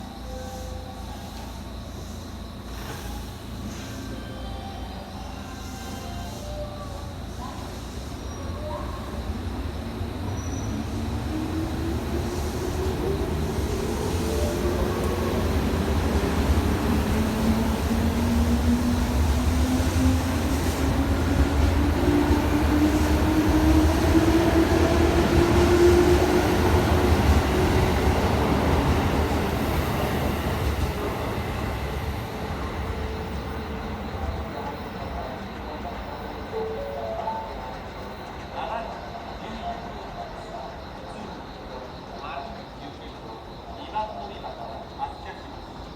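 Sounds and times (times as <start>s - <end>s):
low train rumble: 0.0s - 45.9s.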